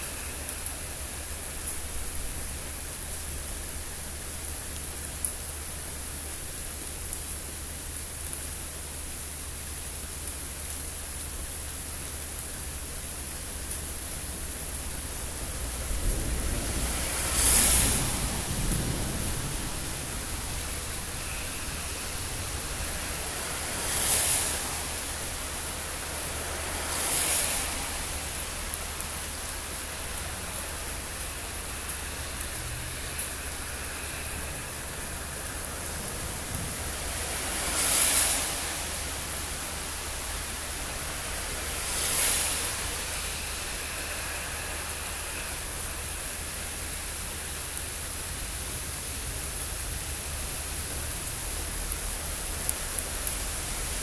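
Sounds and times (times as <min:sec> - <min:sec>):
heavy rain hissing: 0:00.0 - 0:54.0
whooshing wind gusts: 0:15.3 - 0:54.0
low thunder rumble: 0:15.6 - 0:22.9.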